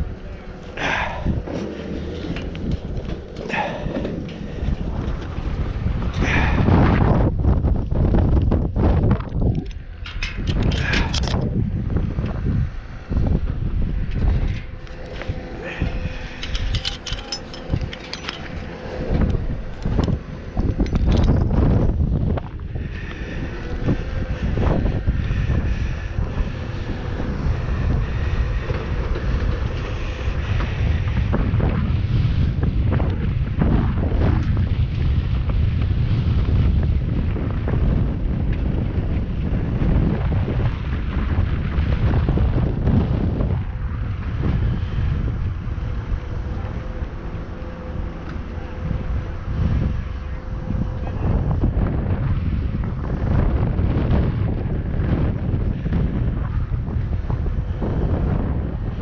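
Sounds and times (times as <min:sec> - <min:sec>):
wind buffeting microphone: 0:00.0 - 0:59.0
metallic clinks and jingles: 0:16.3 - 0:18.7.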